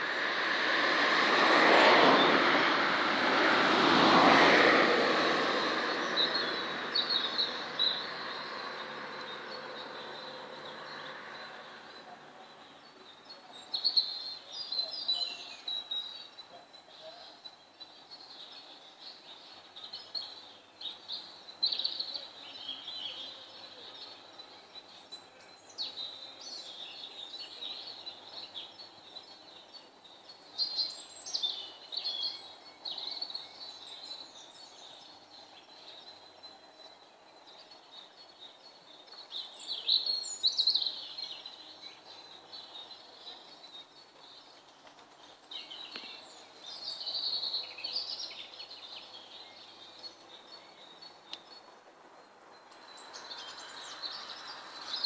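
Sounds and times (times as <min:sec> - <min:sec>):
birds singing and chirping: 0:05.7 - 0:55.0.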